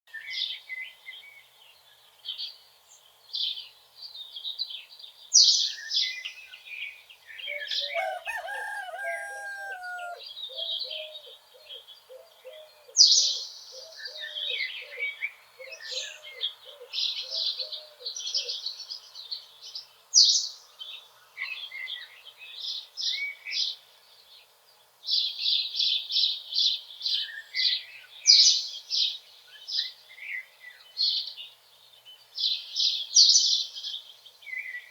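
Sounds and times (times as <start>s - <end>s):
songbirds chirping and singing: 0.1s - 34.9s
distant rooster crowing: 7.6s - 10.2s.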